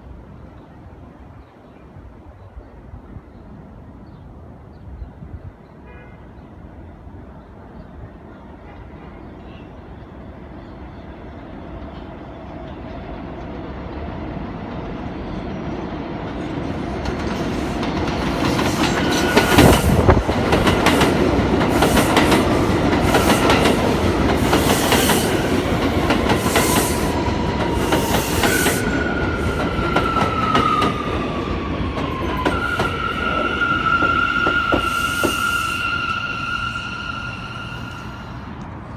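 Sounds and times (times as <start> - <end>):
subway train approaching: 0.0 - 38.9
train brakes squealing: 17.6 - 20.2, 20.9 - 31.4, 32.0 - 38.6.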